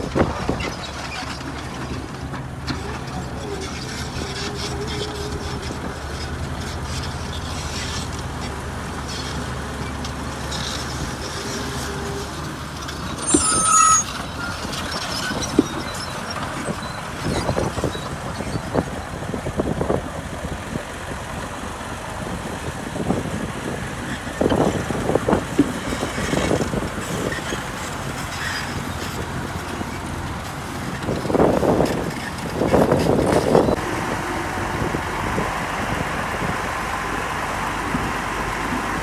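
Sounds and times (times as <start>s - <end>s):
diesel machinery running: 0.0s - 39.0s
high squeal and hiss: 13.1s - 16.1s.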